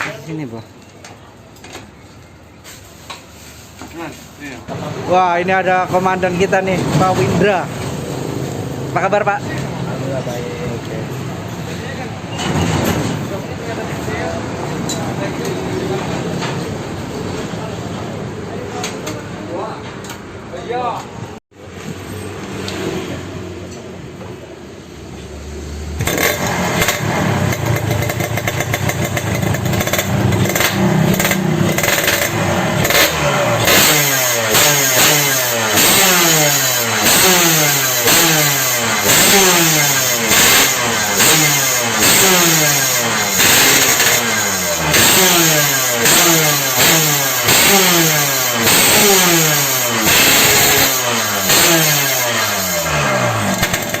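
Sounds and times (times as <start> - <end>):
motorcycle engine revving: 21.7 - 54.0.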